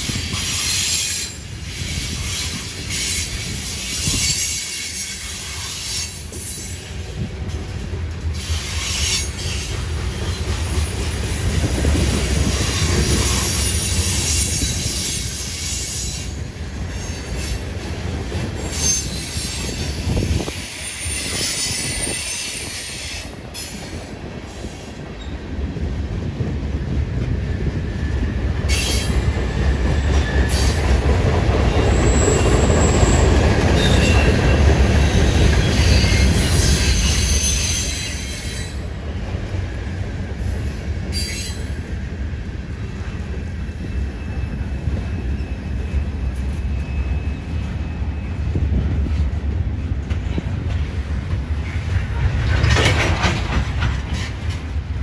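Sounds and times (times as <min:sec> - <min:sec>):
freight train wheels rumbling: 0:00.0 - 0:55.0
high wheel squeals: 0:18.6 - 0:23.9, 0:31.7 - 0:39.2, 0:41.1 - 0:41.8, 0:43.6 - 0:48.6.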